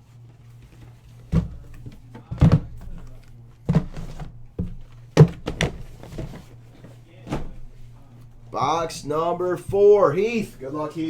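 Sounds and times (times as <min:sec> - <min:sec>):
boxes thudding on a table: 0:01.3 - 0:07.7.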